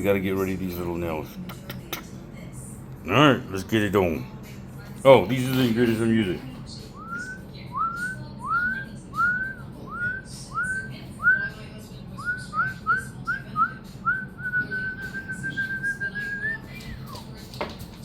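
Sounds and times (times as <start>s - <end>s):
person whistling: 12.2s - 16.6s.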